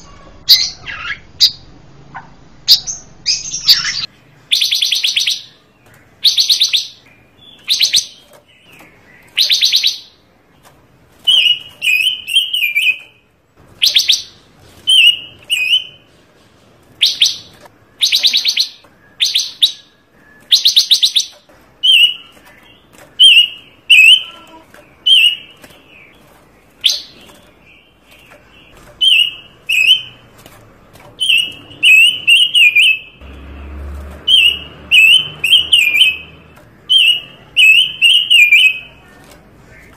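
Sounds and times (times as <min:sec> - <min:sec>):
songbird trilling and chirping: 0:02.7 - 0:10.3, 0:13.8 - 0:16.0, 0:17.0 - 0:30.3, 0:31.1 - 0:33.3, 0:34.2 - 0:39.1.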